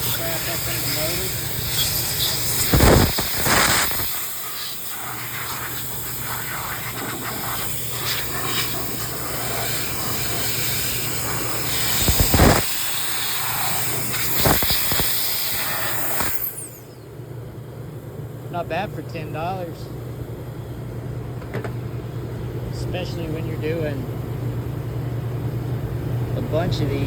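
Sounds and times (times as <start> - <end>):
air duster hissing: 0.0 - 16.9.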